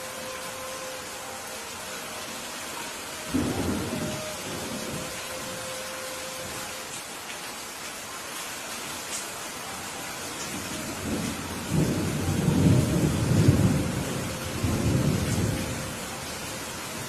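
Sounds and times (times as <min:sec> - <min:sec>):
steady rain falling: 0:00.0 - 0:17.0
thunder rumbling: 0:03.3 - 0:05.5, 0:10.6 - 0:16.2.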